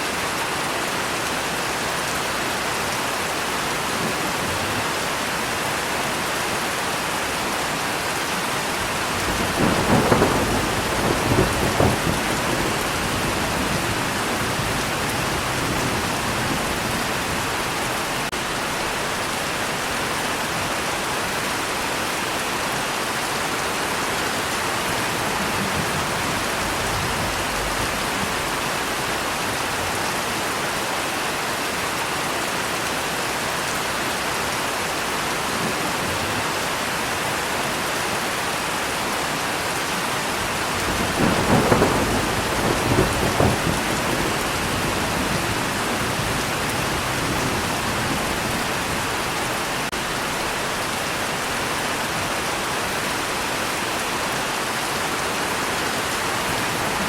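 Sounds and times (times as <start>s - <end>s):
rain falling: 0.0s - 57.0s
thunder rolling: 8.8s - 19.0s, 24.4s - 29.2s, 40.6s - 50.6s.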